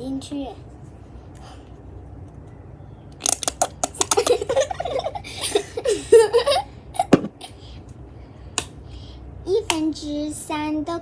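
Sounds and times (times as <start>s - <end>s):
children laughing: 4.0s - 7.6s.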